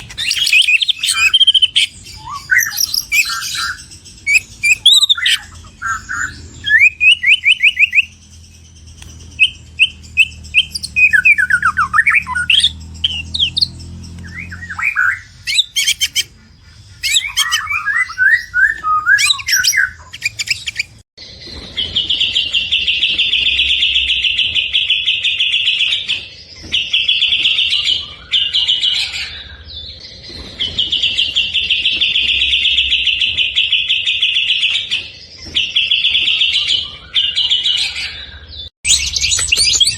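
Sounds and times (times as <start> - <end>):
songbird singing: 0.0 - 21.0, 36.0 - 39.9.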